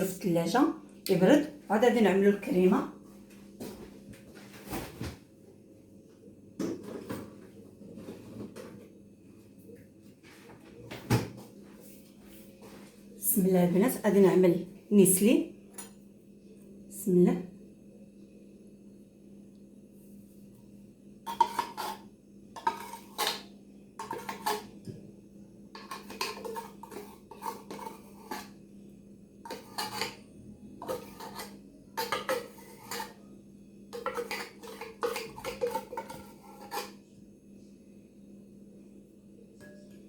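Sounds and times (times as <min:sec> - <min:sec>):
metal spoon scraping a dish: 0:21.3 - 0:24.8, 0:25.8 - 0:28.6, 0:29.4 - 0:33.3, 0:33.9 - 0:37.0.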